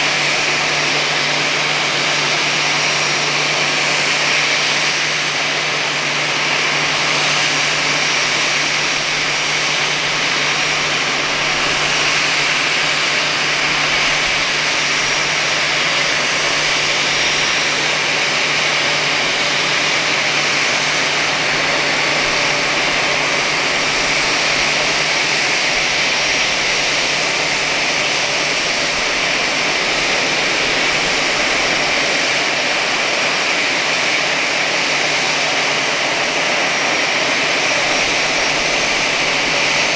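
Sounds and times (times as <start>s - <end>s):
jet engine rushing hiss: 0.0s - 39.9s.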